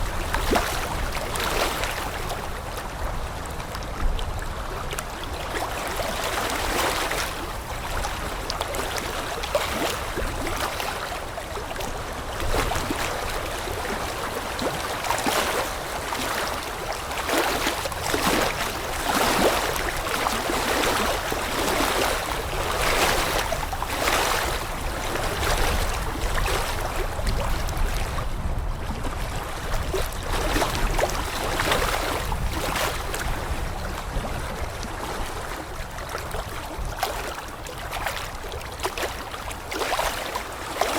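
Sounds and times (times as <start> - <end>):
water rushing and splashing: 0.0 - 40.9.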